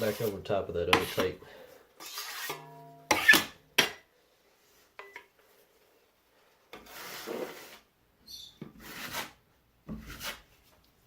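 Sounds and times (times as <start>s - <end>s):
drywall knife scraping: 0.0s - 1.4s, 2.0s - 3.6s, 6.7s - 7.9s, 8.5s - 10.7s.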